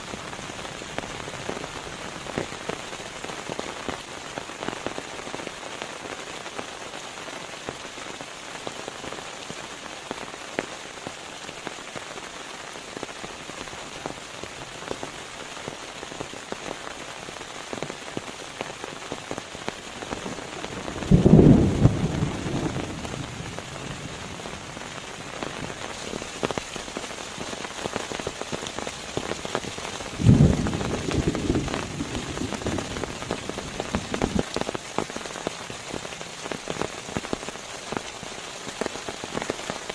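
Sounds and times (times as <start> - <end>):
rain drops ticking: 0.0 - 39.9
low thunderclaps rumbling: 20.2 - 24.8, 30.1 - 34.5.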